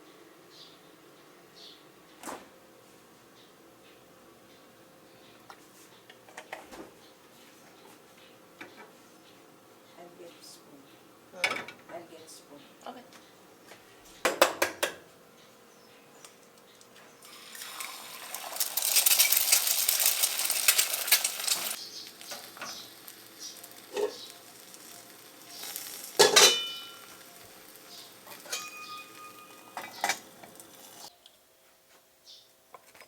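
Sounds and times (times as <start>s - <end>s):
dishes and cutlery clinking: 23.9s - 24.2s, 25.6s - 27.2s, 28.2s - 30.6s
ringing glass clinks: 26.2s - 27.2s, 28.3s - 30.0s.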